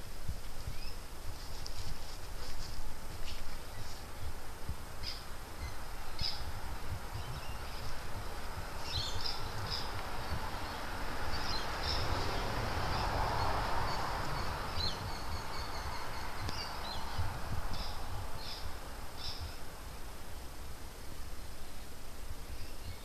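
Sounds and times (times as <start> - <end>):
soft hiss: 0.0 - 23.0
birds chirping: 5.0 - 19.7.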